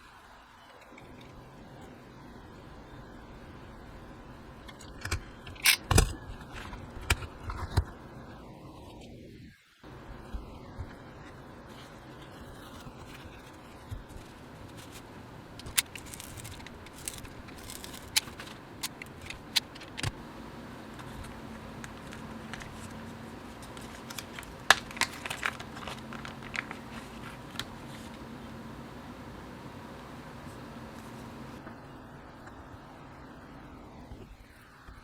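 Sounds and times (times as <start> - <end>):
faint steady hum: 0.0 - 35.0
keyboard parts clicking and snapping: 15.6 - 20.2.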